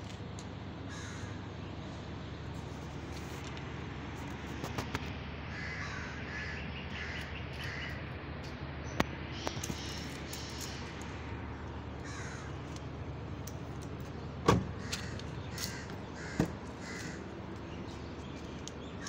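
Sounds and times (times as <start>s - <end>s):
low background rumble: 0.0s - 19.0s
bird harsh calls: 5.5s - 8.1s, 12.0s - 12.7s, 14.6s - 19.0s.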